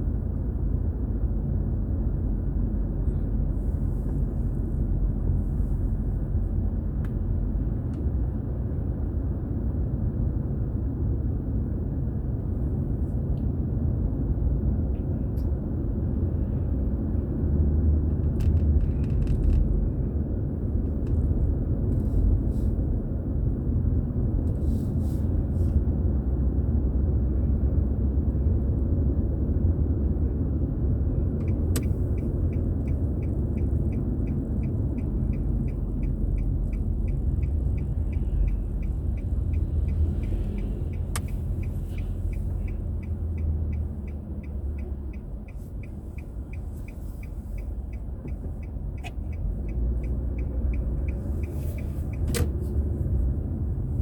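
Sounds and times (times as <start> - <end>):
road and engine rumble in car: 0.0 - 54.0
turn signal ticking: 31.2 - 54.0.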